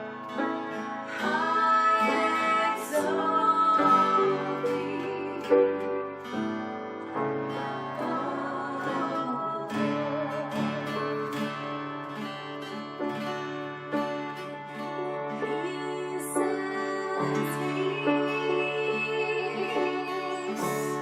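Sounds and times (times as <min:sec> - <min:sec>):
acoustic guitar playing: 0:00.0 - 0:21.0
person singing: 0:01.1 - 0:06.0, 0:07.5 - 0:11.8, 0:15.1 - 0:21.0.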